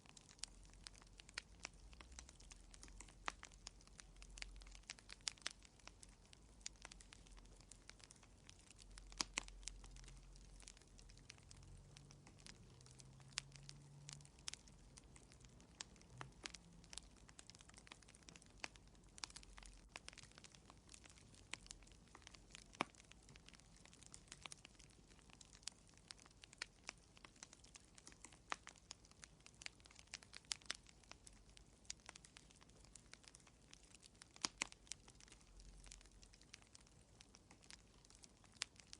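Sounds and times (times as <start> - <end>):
faint low hum: 0.0 - 38.9
fire crackling: 0.0 - 38.9.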